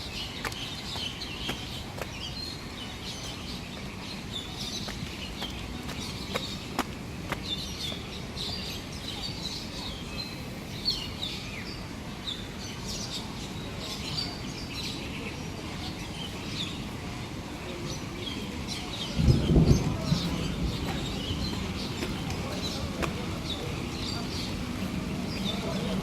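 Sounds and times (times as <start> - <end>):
many birds chirping: 0.0 - 26.0.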